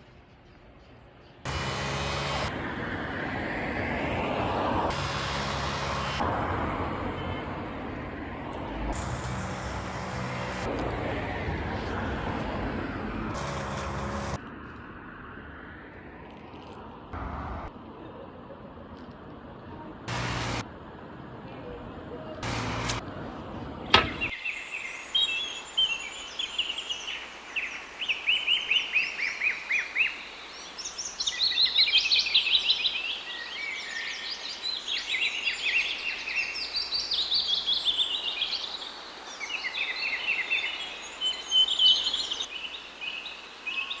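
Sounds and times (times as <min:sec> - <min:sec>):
birdsong trills: 0:24.0 - 0:44.0.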